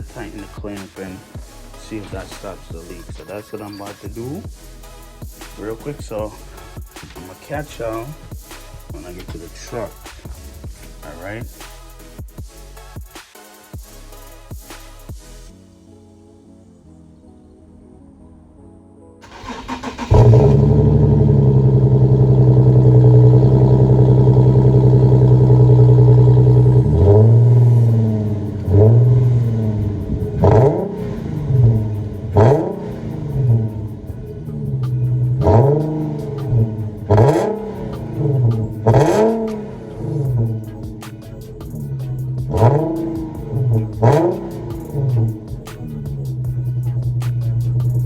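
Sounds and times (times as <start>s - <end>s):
sharp exhaust cracks: 19.2s - 48.0s
vehicle engine revving: 19.2s - 48.0s.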